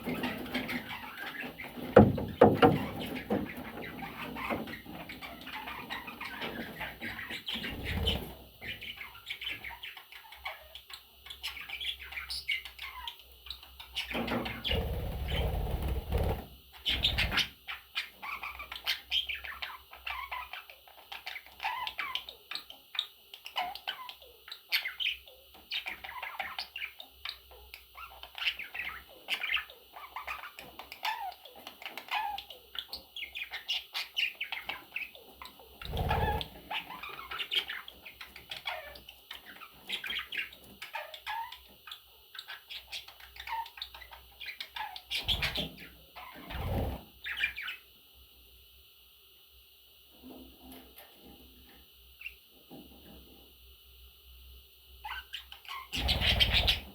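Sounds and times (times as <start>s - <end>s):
budgerigars chirping and warbling: 0.0s - 47.9s, 55.0s - 56.9s
dull thumps: 1.8s - 3.1s.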